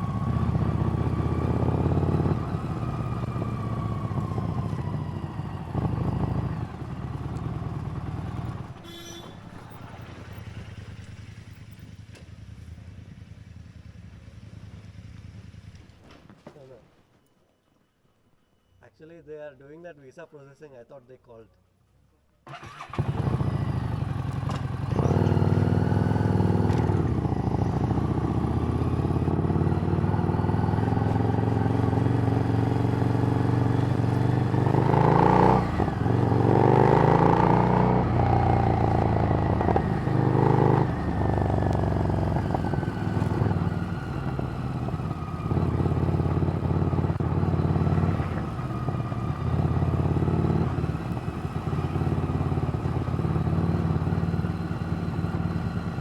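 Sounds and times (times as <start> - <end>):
motorcycle engine revving: 0.0 - 9.2, 22.5 - 56.0.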